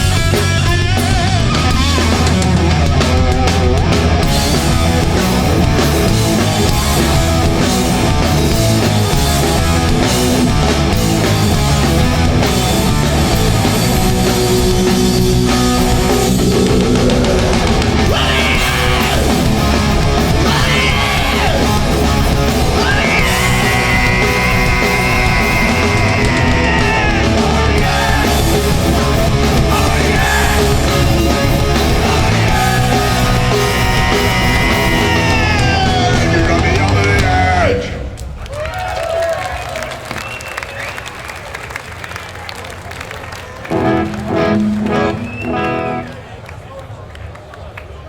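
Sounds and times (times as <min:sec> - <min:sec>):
punk band playing: 0:00.0 - 0:40.9, 0:43.0 - 0:46.5
person yelling vocals: 0:18.0 - 0:19.5, 0:20.4 - 0:21.8, 0:22.6 - 0:28.6.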